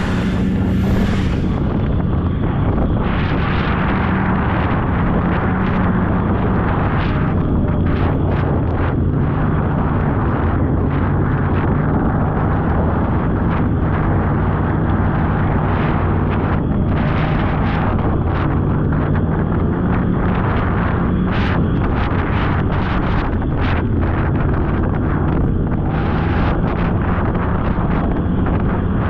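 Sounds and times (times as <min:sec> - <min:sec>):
snowmobile engine running: 0:00.0 - 0:03.5
wind buffeting microphone: 0:00.0 - 0:29.0.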